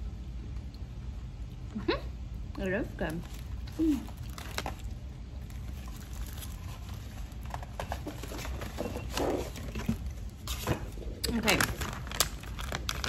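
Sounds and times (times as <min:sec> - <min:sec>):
granola bar being chewed: 0:11.2 - 0:13.0.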